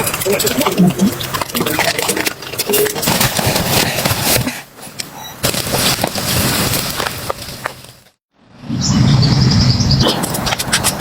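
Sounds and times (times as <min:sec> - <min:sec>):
dense crackling and clicking: 0:00.0 - 0:03.5.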